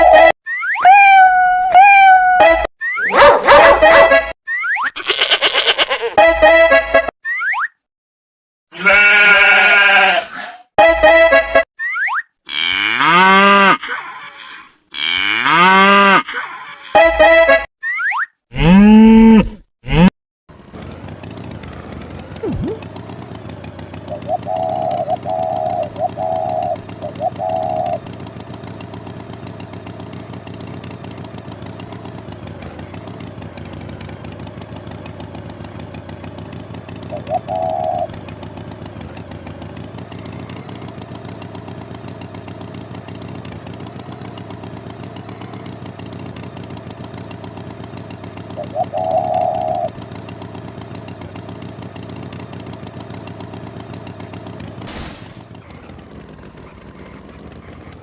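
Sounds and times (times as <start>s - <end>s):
short pulsed tones: 22.4s - 22.8s
steady engine-like drone: 53.3s - 58.0s.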